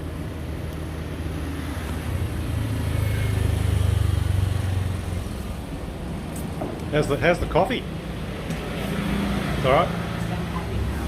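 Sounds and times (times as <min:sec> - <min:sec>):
vehicle engine rumbling past: 0:01.2 - 0:11.0.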